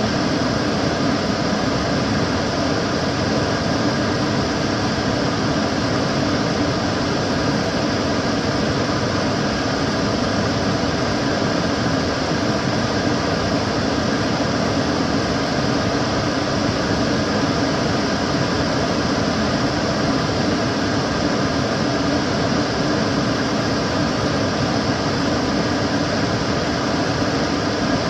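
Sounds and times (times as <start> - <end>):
extractor fan running: 0.0 - 28.0.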